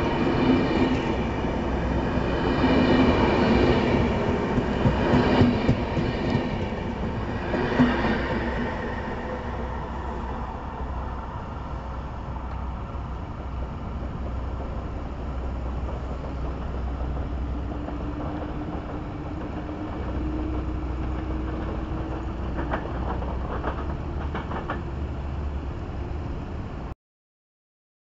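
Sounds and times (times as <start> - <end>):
train low rumble: 0.0 - 26.9
train clicks: 3.0 - 8.5, 12.4 - 25.5.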